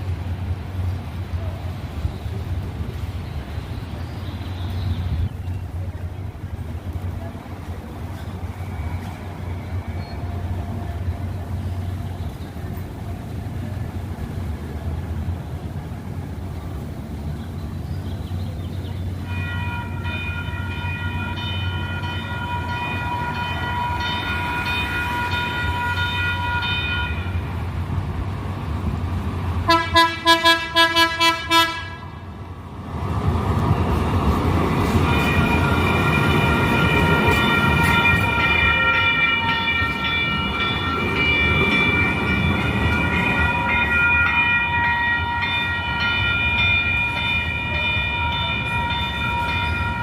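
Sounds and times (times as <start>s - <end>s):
train rumbling: 0.0s - 50.0s
train horn blast: 19.2s - 27.4s, 29.6s - 32.4s, 34.8s - 39.8s.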